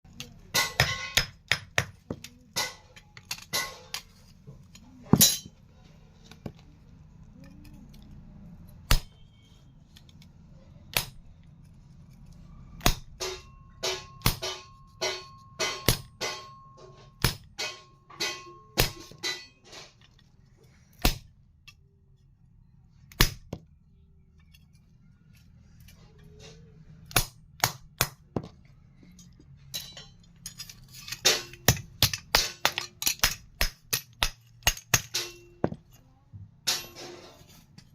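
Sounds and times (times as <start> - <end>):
hammer striking iron on anvil: 0.2 - 4.1, 12.8 - 19.7, 31.1 - 35.9, 36.6 - 37.5.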